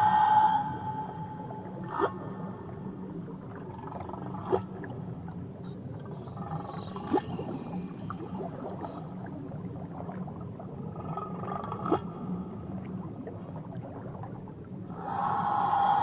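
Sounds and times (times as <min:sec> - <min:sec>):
whale song: 0:00.0 - 0:04.9, 0:05.8 - 0:11.7, 0:14.9 - 0:16.0
underwater crackling: 0:03.6 - 0:12.1.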